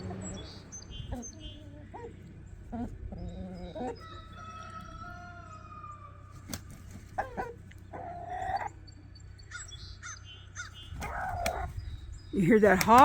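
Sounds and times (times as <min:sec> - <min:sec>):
harsh bird calls: 0:00.0 - 0:13.0
rooster crowing: 0:04.0 - 0:06.4.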